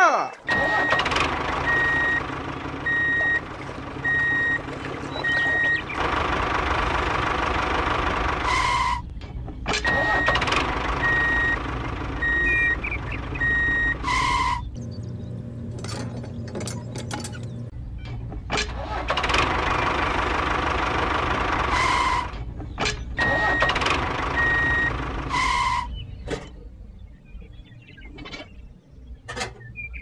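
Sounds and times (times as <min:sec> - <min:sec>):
diesel engine running: 0:00.4 - 0:27.8
reversing beeper: 0:00.5 - 0:06.0, 0:09.8 - 0:15.0, 0:23.2 - 0:25.8.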